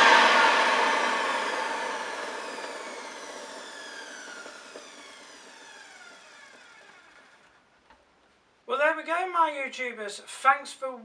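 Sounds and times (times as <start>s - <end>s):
vacuum cleaner motor winding down: 0.0s - 7.6s.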